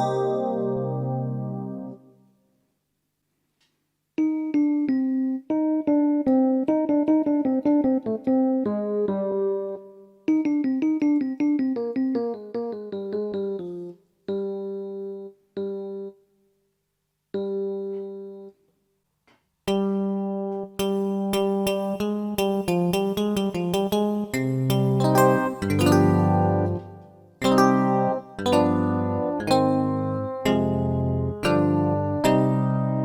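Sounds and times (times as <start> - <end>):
electric piano notes: 0.0 - 2.0, 23.9 - 33.0.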